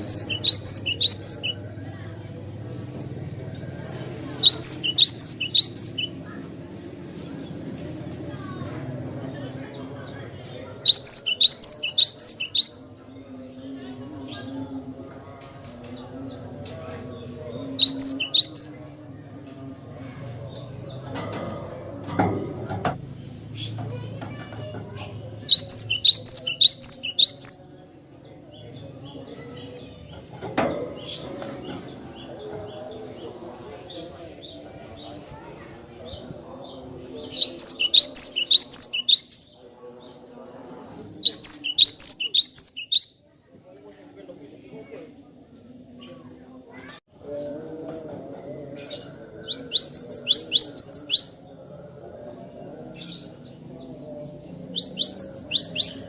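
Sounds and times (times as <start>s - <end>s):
faint bird chirps: 0.0s - 1.6s, 4.4s - 6.2s, 10.3s - 12.8s, 17.7s - 18.8s, 25.5s - 27.6s, 37.3s - 39.6s, 41.2s - 43.2s, 49.5s - 51.4s, 54.8s - 56.0s.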